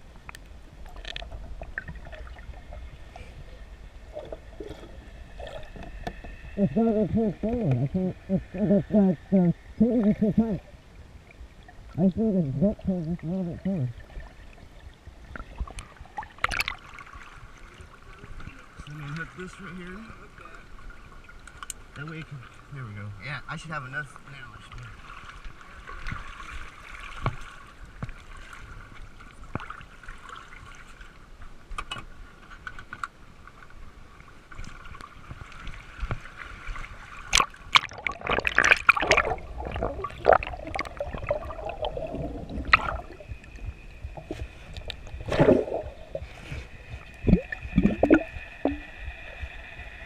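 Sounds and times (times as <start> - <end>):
water splashing around boat: 11.3 - 22.9, 24.5 - 49.6.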